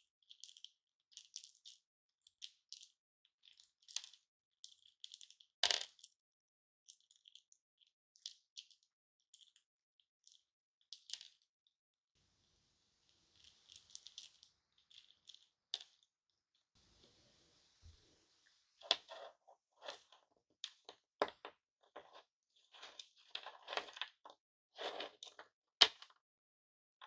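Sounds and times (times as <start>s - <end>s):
light crinkling: 13.1s - 16.1s.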